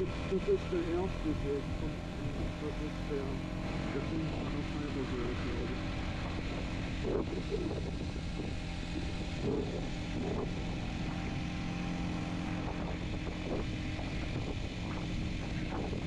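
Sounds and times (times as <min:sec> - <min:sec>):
motorcycle engine running: 0:00.0 - 0:16.0
wind rushing over microphone: 0:03.6 - 0:16.0.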